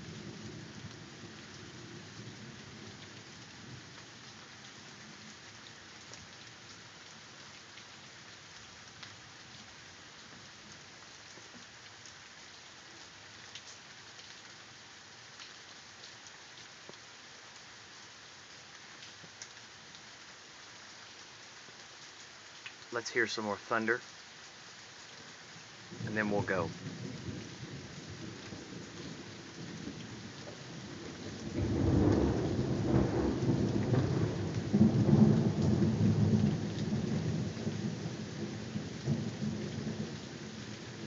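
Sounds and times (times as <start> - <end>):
steady rain falling: 0.0 - 41.0
raindrops ticking sharply: 22.6 - 24.1, 25.9 - 27.4
low rumble of thunder: 25.9 - 41.0.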